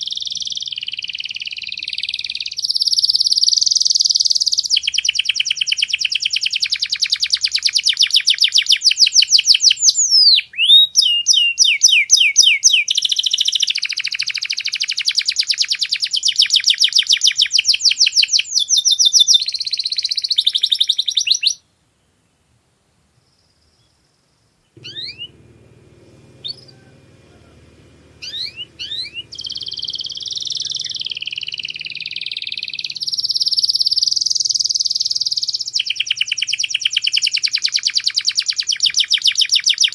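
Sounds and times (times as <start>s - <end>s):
canary singing trills: 0.0s - 21.6s, 24.7s - 39.9s
faint low hum: 21.6s - 39.7s.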